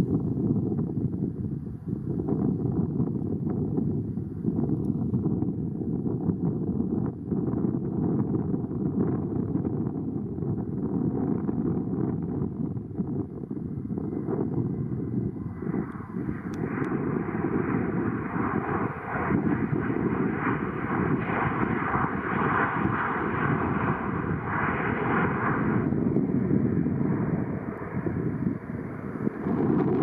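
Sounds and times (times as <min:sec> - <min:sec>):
wind rumble on microphone: 0:00.0 - 0:30.0
aircraft engines passing: 0:08.5 - 0:30.0.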